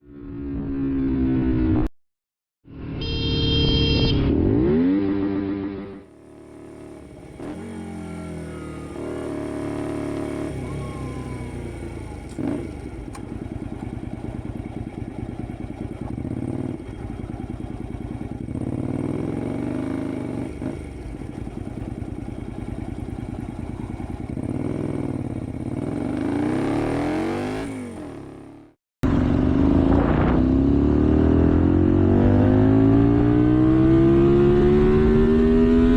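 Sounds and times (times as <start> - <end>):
motorcycle engine accelerating: 0.0 - 1.9, 2.7 - 35.9.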